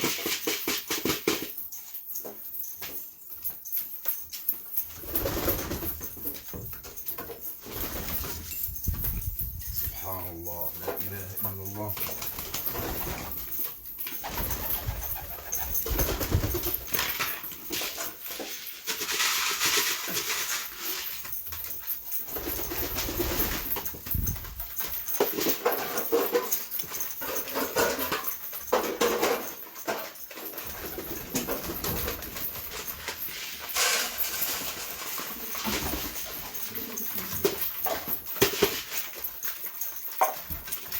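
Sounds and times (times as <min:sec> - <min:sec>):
pigeons scuffling: 0:00.0 - 0:40.9
pigeons flapping wings: 0:05.0 - 0:06.4, 0:07.6 - 0:09.9, 0:12.0 - 0:17.5, 0:22.2 - 0:26.4, 0:30.5 - 0:40.9.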